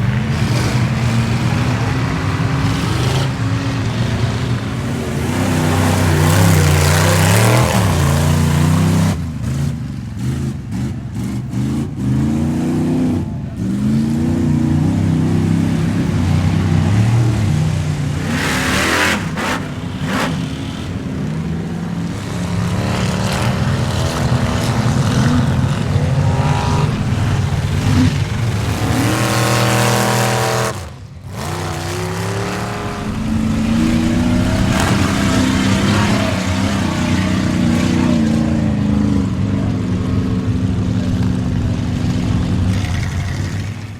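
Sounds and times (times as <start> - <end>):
truck engine revving hard: 0.0 - 43.9.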